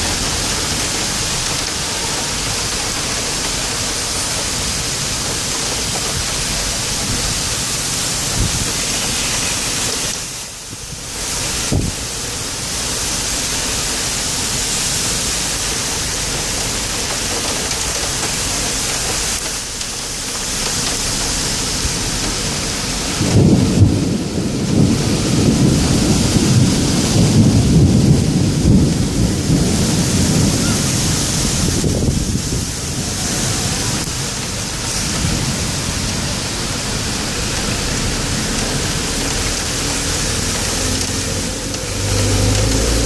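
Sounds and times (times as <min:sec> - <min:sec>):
rolling thunder rumble: 0:00.0 - 0:43.0
torrential rain hissing: 0:00.0 - 0:43.0.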